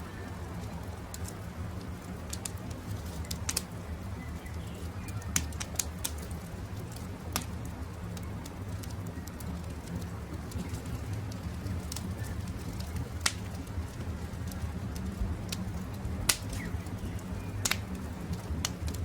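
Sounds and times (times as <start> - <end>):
campfire crackling: 0.0 - 19.0
faint birdsong: 0.0 - 19.0.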